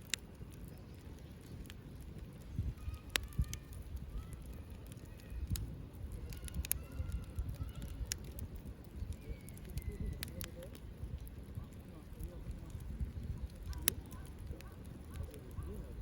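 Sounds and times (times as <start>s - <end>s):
wood fire crackling: 0.0s - 16.0s
faint whistling tones: 9.0s - 11.8s.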